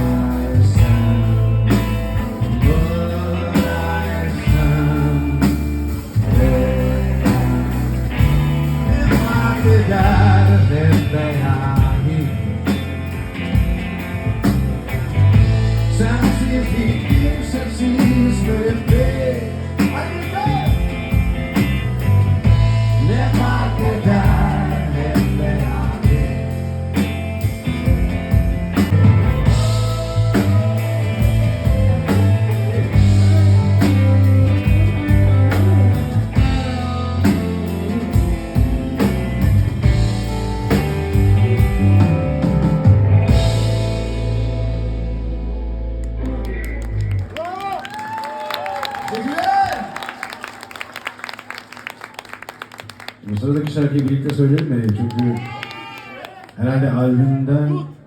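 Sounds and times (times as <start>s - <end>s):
person singing: 0.0s - 12.8s, 15.9s - 20.8s, 22.8s - 26.6s, 29.4s - 38.2s
drums: 0.0s - 53.2s
electric guitar: 0.0s - 53.2s
bass guitar: 0.0s - 53.6s.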